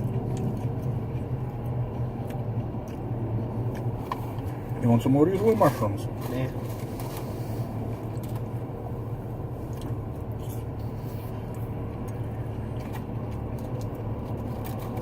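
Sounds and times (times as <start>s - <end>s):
person chewing: 0.0s - 4.0s, 9.5s - 15.0s
steady low hum: 0.0s - 15.0s.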